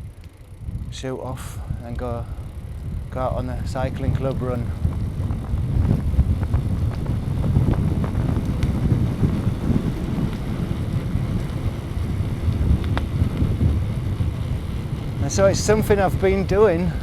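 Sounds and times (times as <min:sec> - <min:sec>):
bicycle tyre road noise: 0:00.0 - 0:17.0
wind buffeting microphone: 0:00.0 - 0:17.0.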